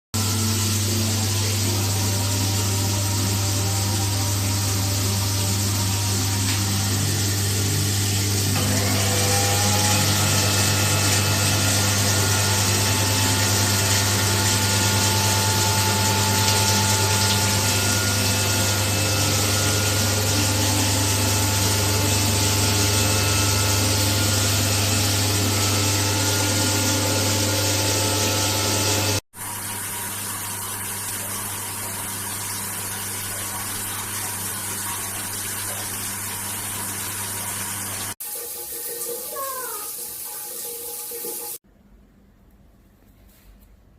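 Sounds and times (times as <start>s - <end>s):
pump humming: 0.2s - 41.6s
shower water hissing: 0.2s - 41.6s.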